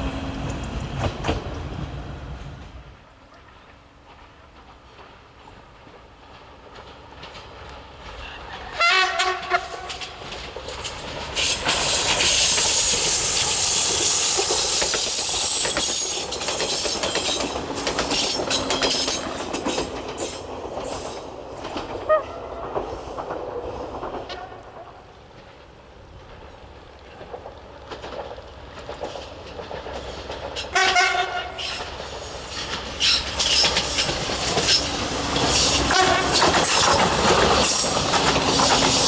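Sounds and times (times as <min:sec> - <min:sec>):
train passing close by: 0:00.0 - 0:39.0
wheels clicking over rail joints: 0:03.3 - 0:39.0
train horn blast: 0:08.7 - 0:10.0, 0:22.1 - 0:22.6, 0:30.7 - 0:31.8, 0:35.9 - 0:36.4.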